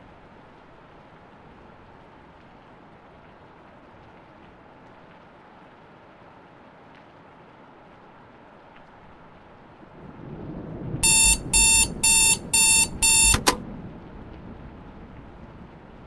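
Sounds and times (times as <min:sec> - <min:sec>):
sharp click: 0:11.0 - 0:13.6
short electronic beeps: 0:11.0 - 0:13.6.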